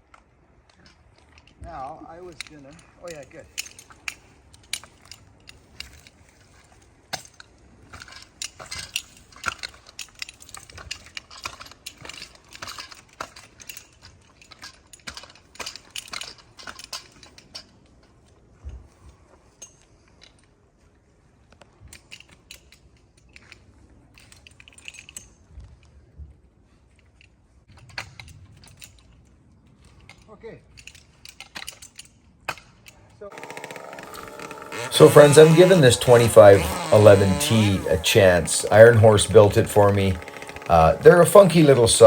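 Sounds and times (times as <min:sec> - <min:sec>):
metal climbing hardware jangling: 0:02.2 - 0:17.8, 0:21.9 - 0:25.5, 0:29.8 - 0:33.0.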